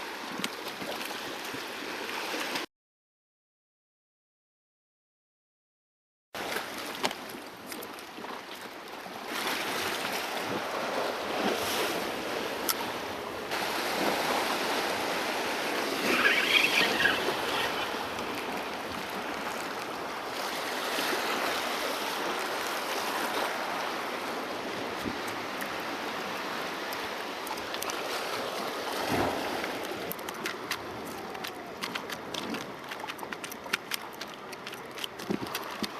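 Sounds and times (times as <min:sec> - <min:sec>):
sea waves washing over rocks: 0:08.9 - 0:35.9.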